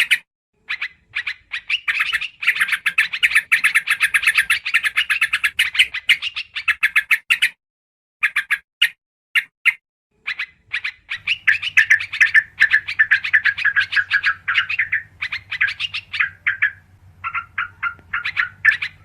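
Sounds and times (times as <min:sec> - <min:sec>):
birds chattering calls: 0:00.0 - 0:07.5, 0:10.2 - 0:19.0.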